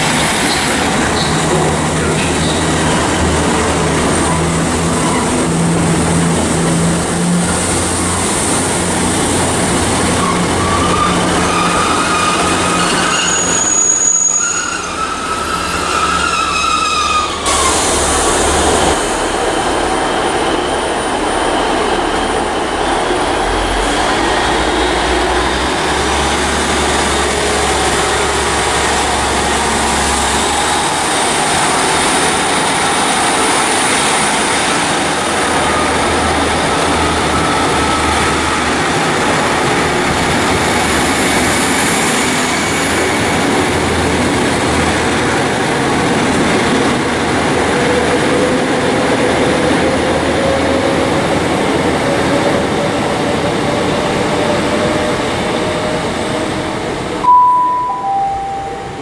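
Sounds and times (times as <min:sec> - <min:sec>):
train engines droning: 0:00.0 - 0:59.0
high metallic train squeal: 0:10.1 - 0:22.8, 0:35.4 - 0:38.8.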